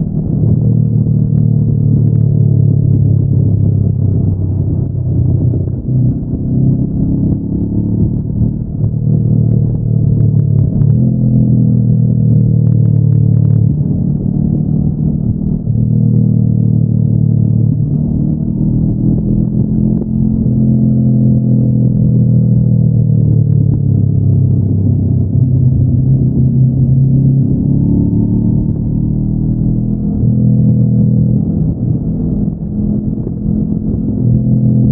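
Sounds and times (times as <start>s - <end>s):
motorcycle engine droning: 0.0s - 34.9s.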